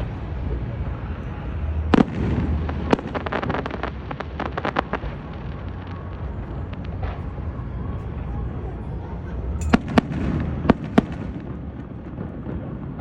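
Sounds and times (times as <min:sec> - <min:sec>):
fireworks crackling pops: 0:01.7 - 0:08.3
fireworks shells bursting: 0:09.6 - 0:11.3.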